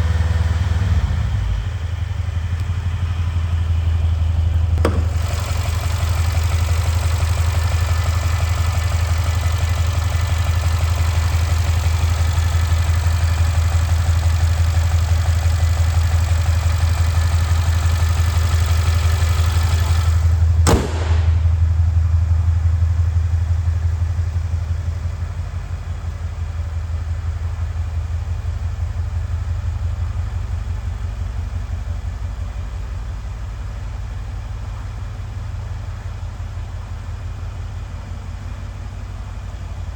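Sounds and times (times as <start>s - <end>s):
car engine idling: 1.3s - 39.9s
sharp click: 4.8s - 9.4s, 17.9s - 21.6s.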